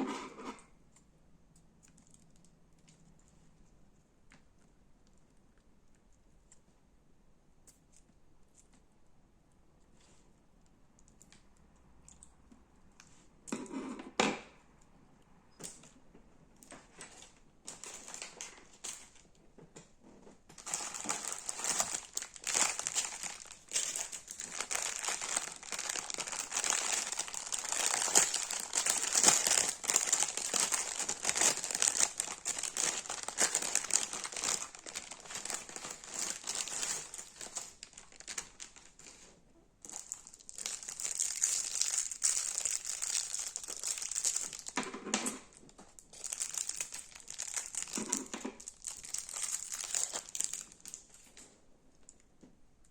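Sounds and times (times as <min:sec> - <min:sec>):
crunchy slime crackling: 0:20.5 - 0:39.2, 0:39.8 - 0:44.8, 0:46.1 - 0:51.1.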